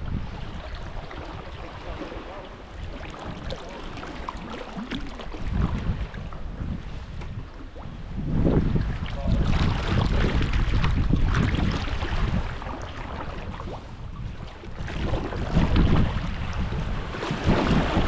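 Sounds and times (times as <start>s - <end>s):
water splashing around kayak: 0.0s - 18.0s
wind buffeting microphone: 0.0s - 18.0s.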